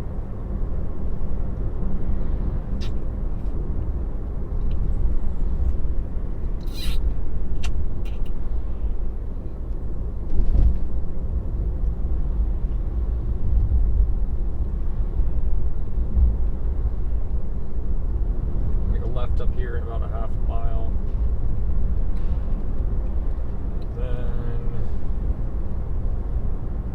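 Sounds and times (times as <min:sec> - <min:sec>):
tyre and road rumble: 0:00.0 - 0:26.9.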